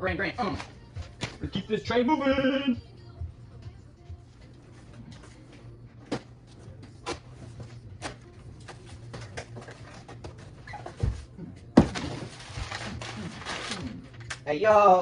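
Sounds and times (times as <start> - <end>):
packing material rustling: 11.9 - 14.4.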